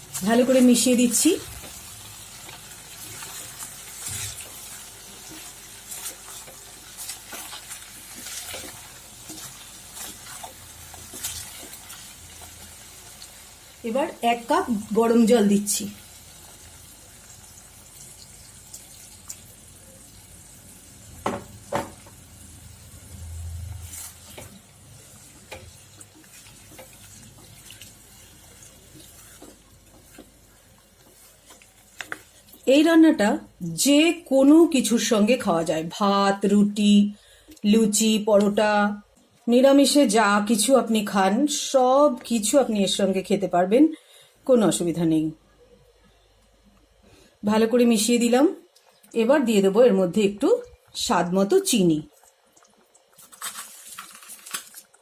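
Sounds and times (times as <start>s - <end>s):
spice masala sizzling in a pan: 0.0s - 36.8s.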